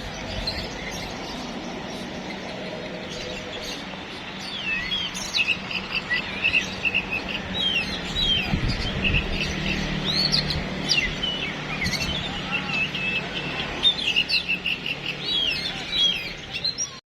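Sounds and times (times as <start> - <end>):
songbirds chirping and whistling: 0.0 - 17.0.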